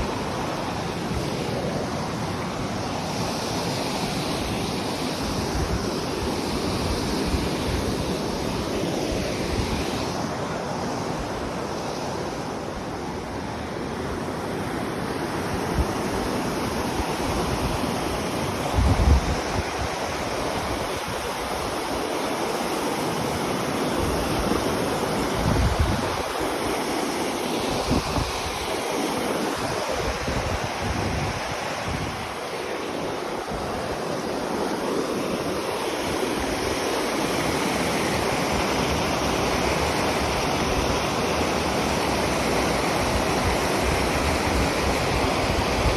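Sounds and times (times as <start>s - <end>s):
wind buffeting microphone: 15.5s - 21.9s, 23.4s - 41.3s.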